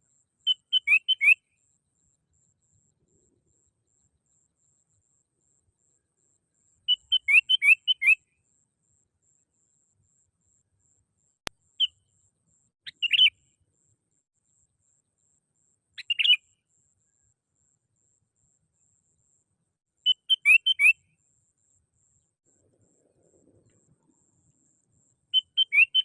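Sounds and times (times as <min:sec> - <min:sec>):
bulbul chirpy calls: 0:00.4 - 0:01.4, 0:06.9 - 0:08.3, 0:11.7 - 0:12.1, 0:12.8 - 0:13.5, 0:16.0 - 0:16.6, 0:20.0 - 0:21.1, 0:22.5 - 0:26.0.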